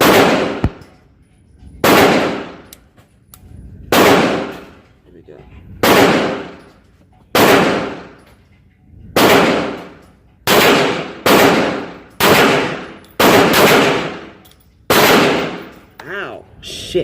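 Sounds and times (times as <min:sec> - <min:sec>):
pistol shots echoing: 0:00.0 - 0:00.9, 0:01.8 - 0:02.7, 0:03.9 - 0:04.8, 0:05.8 - 0:06.7, 0:07.3 - 0:08.2, 0:09.2 - 0:15.8.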